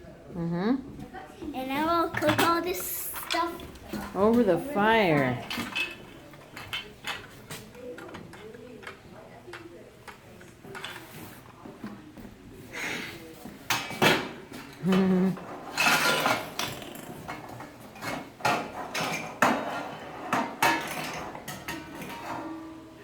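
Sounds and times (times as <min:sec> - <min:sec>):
pans and utensils clattering: 0:01.8 - 0:09.7, 0:12.7 - 0:23.0.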